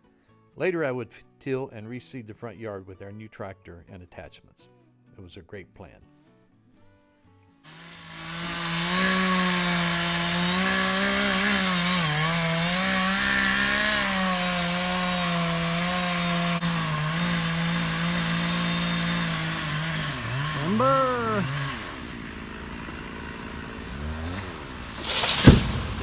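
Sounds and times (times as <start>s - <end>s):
chainsaw cutting wood: 7.7s - 26.0s.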